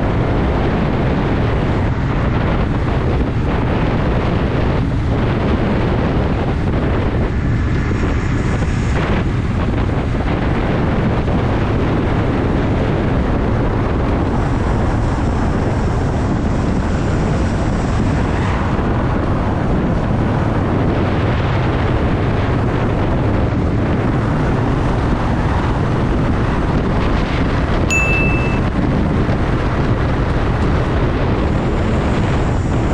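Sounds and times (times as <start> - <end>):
wind noise on microphone: 0.0 - 32.9
short high beep: 27.9 - 28.8.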